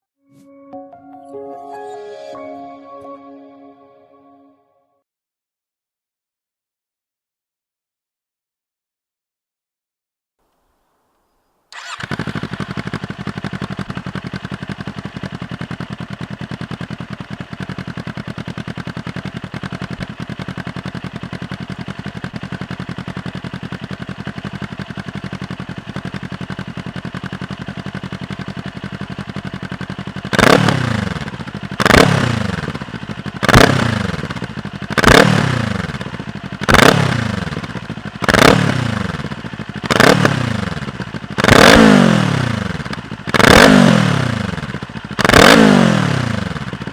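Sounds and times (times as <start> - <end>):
motorcycle throttle blips: 11.7 - 43.8
motorcycle engine idling: 11.8 - 46.9.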